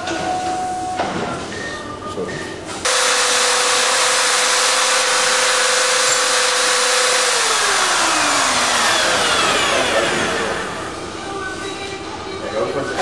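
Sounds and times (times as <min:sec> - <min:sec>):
electric drills whining: 0:02.9 - 0:11.1
rushing mechanical noise: 0:02.9 - 0:11.3.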